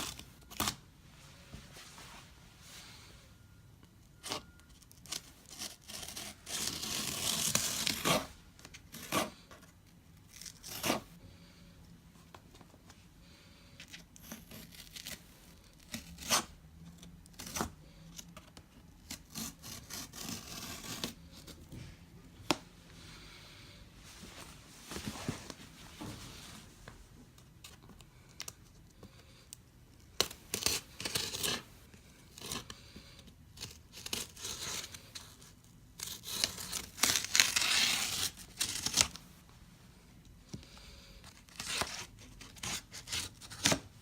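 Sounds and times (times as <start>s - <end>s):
packaging tearing and rustling: 36.0s - 39.2s.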